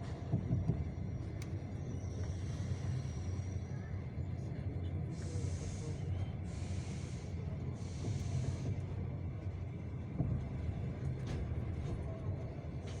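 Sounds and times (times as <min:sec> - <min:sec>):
train wheels rumbling: 0:05.0 - 0:13.0
brake shoes hissing: 0:05.2 - 0:08.8.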